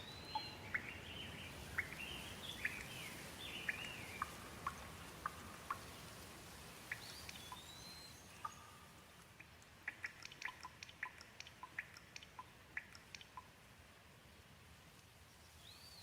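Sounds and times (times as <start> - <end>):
gentle rain hiss: 0.0 - 16.0
raindrops ticking: 1.7 - 13.7.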